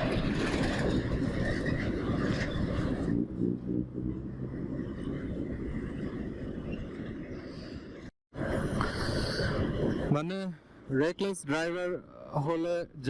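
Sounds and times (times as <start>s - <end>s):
passing traffic rumble: 0.0s - 8.7s
vehicle engine hum: 0.0s - 8.7s.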